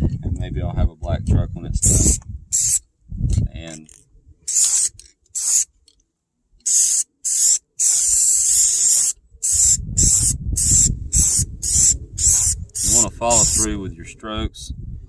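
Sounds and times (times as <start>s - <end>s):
wind rumble on microphone: 0.0s - 4.5s, 9.2s - 15.0s
spray paint can spraying: 1.8s - 2.8s, 4.5s - 5.7s, 6.6s - 13.7s.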